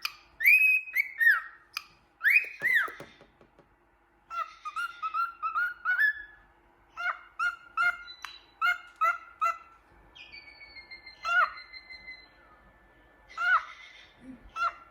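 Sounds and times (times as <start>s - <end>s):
cockatiel chirping: 0.0s - 3.2s, 4.3s - 12.4s.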